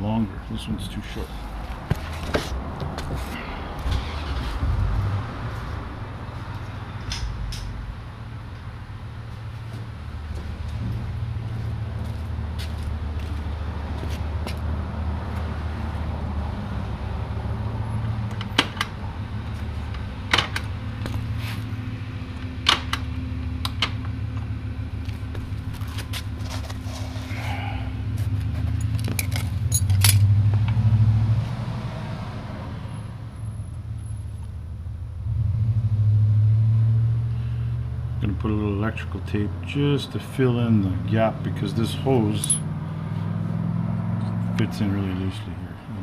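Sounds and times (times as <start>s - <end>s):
low rumble: 2.6s - 12.5s
hand tools clinking: 42.4s - 42.7s.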